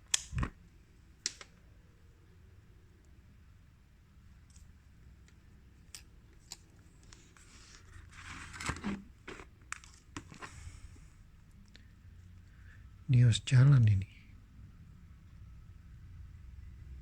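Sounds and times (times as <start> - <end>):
light clicks of small parts: 1.2 - 1.6, 4.4 - 7.5
rustling and scraping: 7.0 - 11.1.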